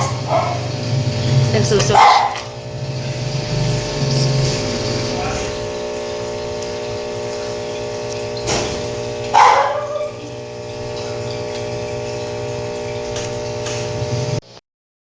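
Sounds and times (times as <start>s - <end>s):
dog vocal sounds: 0.0s - 0.8s, 9.4s - 10.4s
steady hum: 0.0s - 14.6s.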